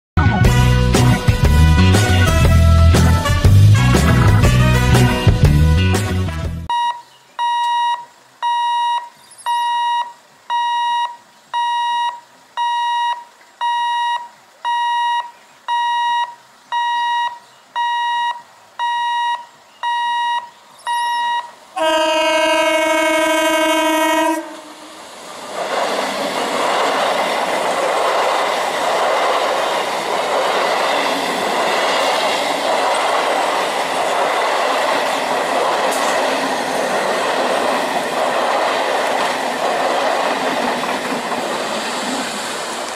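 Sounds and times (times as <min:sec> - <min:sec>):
train horn: 0:00.4 - 0:05.3, 0:21.8 - 0:25.0
level-crossing alarm beeping: 0:06.7 - 0:22.1
train wheels clattering: 0:25.1 - 0:42.9.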